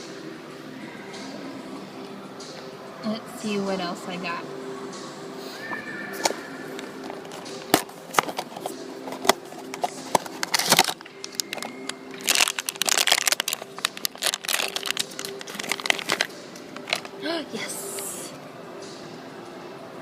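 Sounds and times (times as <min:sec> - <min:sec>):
wrapper crinkling: 0:06.8 - 0:17.2
cardboard clicking and snapping: 0:07.1 - 0:17.1.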